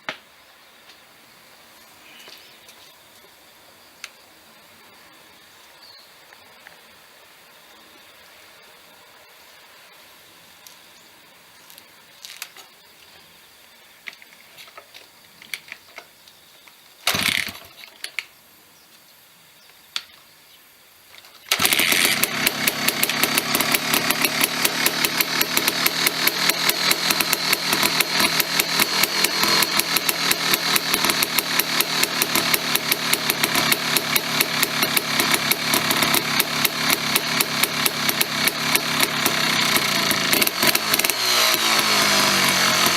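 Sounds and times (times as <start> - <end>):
two-stroke engine idling: 21.5 - 42.9.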